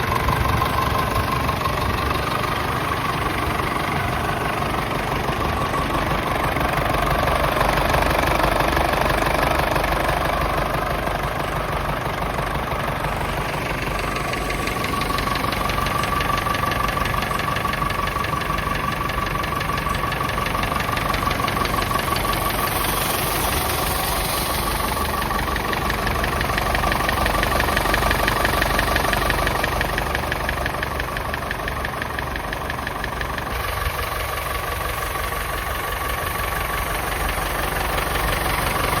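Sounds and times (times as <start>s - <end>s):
tractor diesel engine idling: 0.0s - 39.0s.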